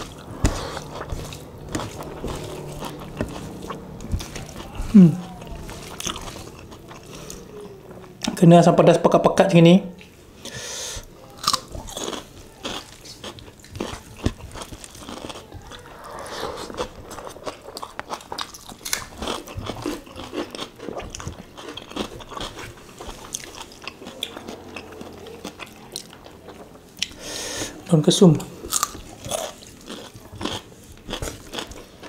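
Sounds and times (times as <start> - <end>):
people chewing and biting food: 0.0 - 8.4, 10.0 - 27.8, 28.4 - 32.0.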